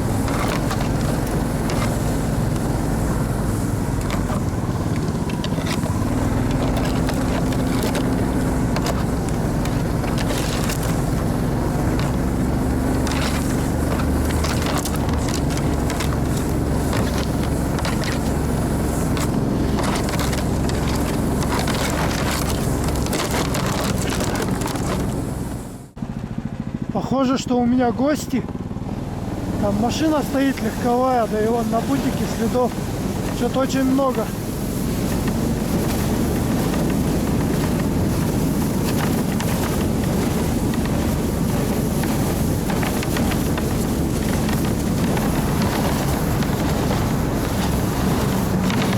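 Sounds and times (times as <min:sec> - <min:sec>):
rattles and knocks: 0:00.0 - 0:25.2
wind buffeting microphone: 0:00.0 - 0:25.8, 0:27.9 - 0:48.9
rushing noise: 0:00.0 - 0:26.0
vehicle engine running: 0:00.0 - 0:48.9.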